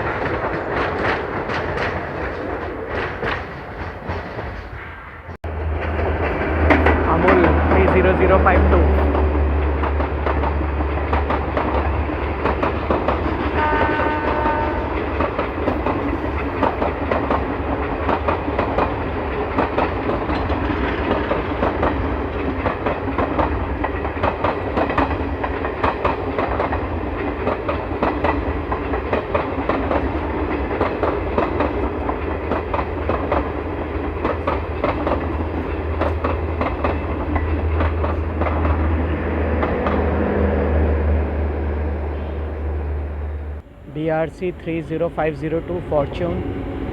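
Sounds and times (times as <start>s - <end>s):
wheels clicking over rail joints: 0.0s - 40.6s
train coaches rumbling past: 0.0s - 46.9s
train horn: 13.3s - 15.3s, 38.2s - 44.8s.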